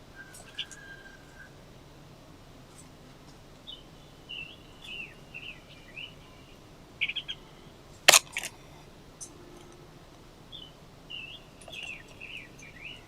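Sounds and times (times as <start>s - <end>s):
songbirds chirping: 0.0s - 13.0s
sharp clicks: 8.1s - 8.5s.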